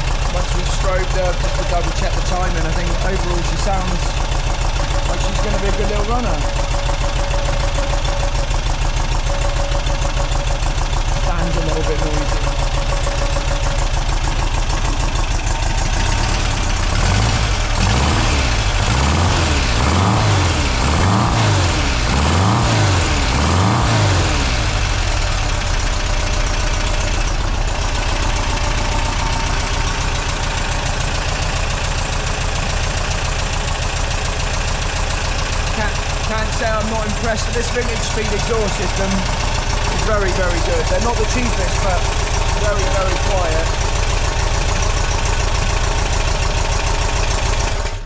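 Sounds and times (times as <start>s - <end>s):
car engine idling: 0.0s - 48.0s
engine revving: 11.0s - 48.0s.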